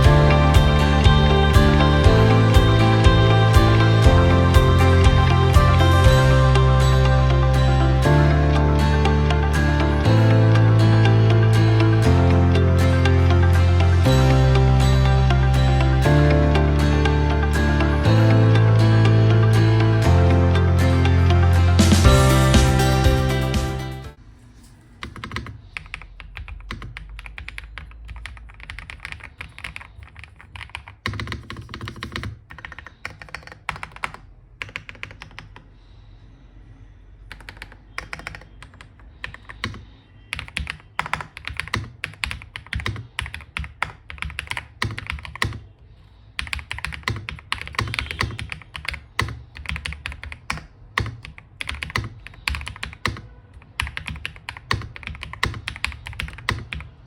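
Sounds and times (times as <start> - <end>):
mechanical keyboard typing: 25.0 - 35.7, 37.3 - 45.7, 46.4 - 57.0.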